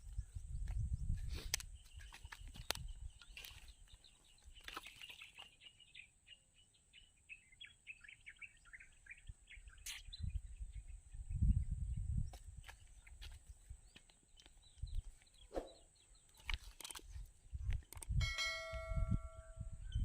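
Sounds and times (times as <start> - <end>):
birds chirping: 0.0 - 18.7
sharp clicks: 17.7 - 18.2.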